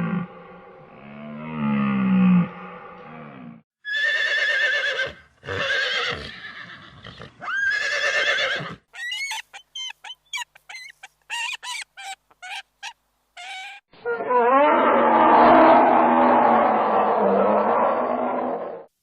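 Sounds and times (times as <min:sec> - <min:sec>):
horse whinnying: 0:03.8 - 0:12.6.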